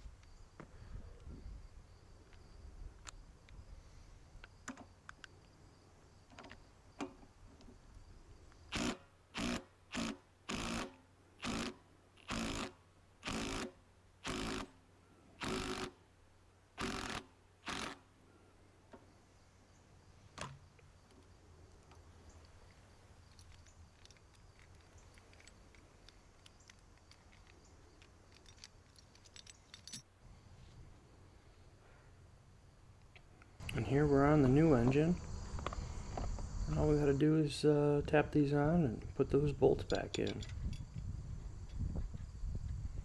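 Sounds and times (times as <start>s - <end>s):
impact wrench bursts: 8.7s - 14.7s, 15.4s - 16.0s.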